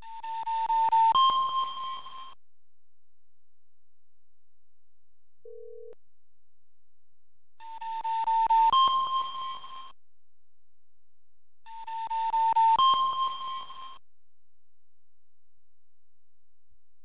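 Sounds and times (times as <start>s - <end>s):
faint low electronic beep: 5.5s - 6.0s.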